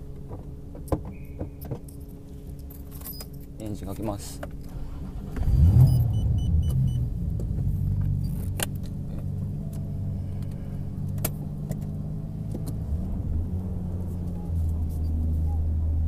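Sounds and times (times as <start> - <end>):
car engine idling: 3.4 - 16.0
short high beeps: 5.8 - 7.0.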